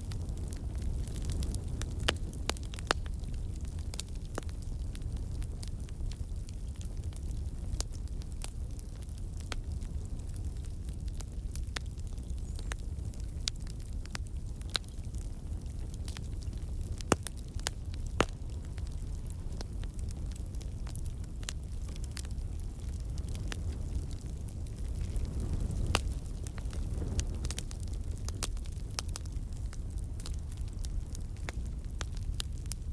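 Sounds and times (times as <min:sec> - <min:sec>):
wood fire crackling and popping: 0:00.0 - 0:32.9.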